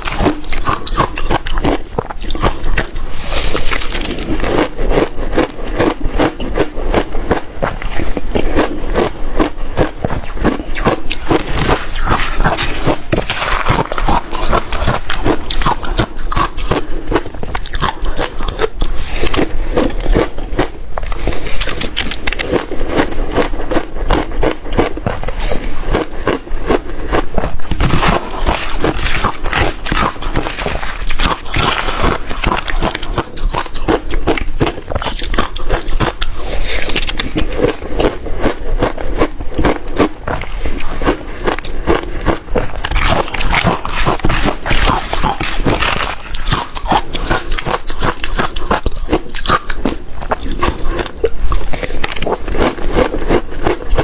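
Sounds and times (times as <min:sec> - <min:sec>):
person chewing ice: 0:00.0 - 0:54.0.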